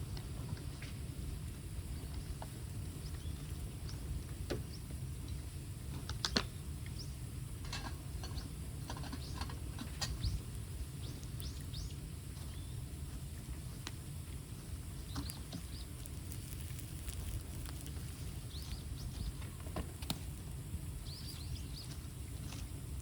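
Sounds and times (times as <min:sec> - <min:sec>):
low steady rumble: 0:00.0 - 0:23.0
bamboo fire crackling and popping: 0:14.9 - 0:20.8.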